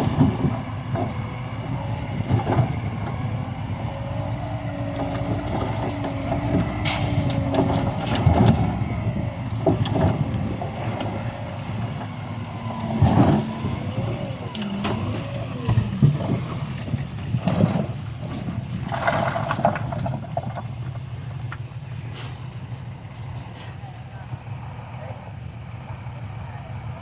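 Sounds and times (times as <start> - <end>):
heavy diesel machinery rumbling: 0.0 - 27.0.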